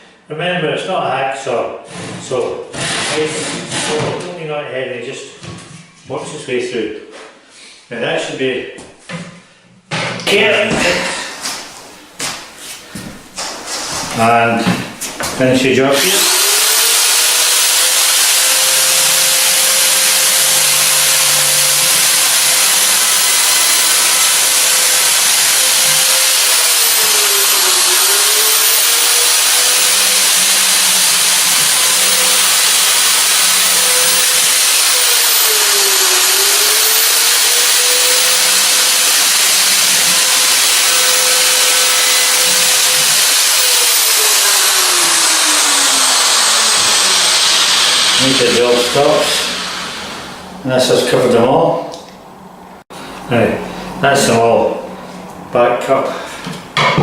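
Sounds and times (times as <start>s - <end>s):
power saw cutting wood: 13.4s - 50.5s.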